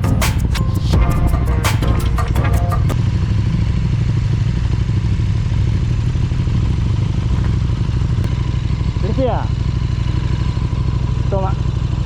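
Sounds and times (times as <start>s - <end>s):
background music: 0.0s - 3.0s
motorcycle engine running steadily: 3.0s - 12.0s.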